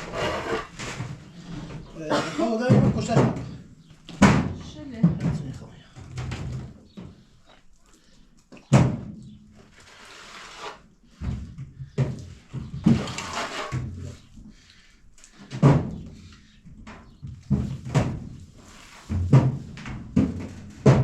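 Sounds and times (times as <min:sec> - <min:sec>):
rustling and scraping: 0:00.0 - 0:02.1, 0:09.5 - 0:21.0.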